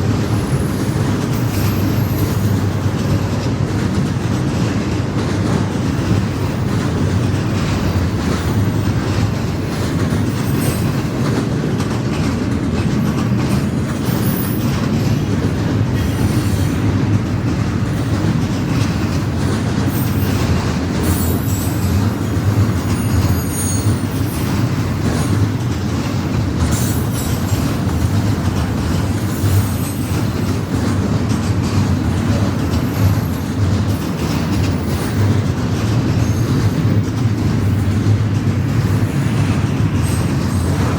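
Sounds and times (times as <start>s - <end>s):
freight train wheels rumbling: 0.0s - 40.9s
high wheel squeals: 19.9s - 25.4s.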